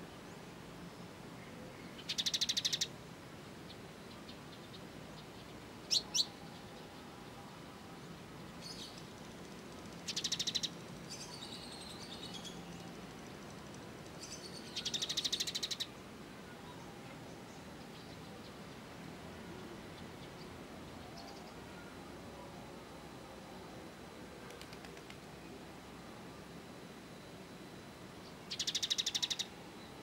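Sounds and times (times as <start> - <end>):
sparrows buzzy trills: 0.3 - 2.9, 8.0 - 18.9, 28.2 - 30.0
bird twittering: 2.0 - 2.9, 10.0 - 12.6, 14.2 - 15.9, 28.5 - 29.6.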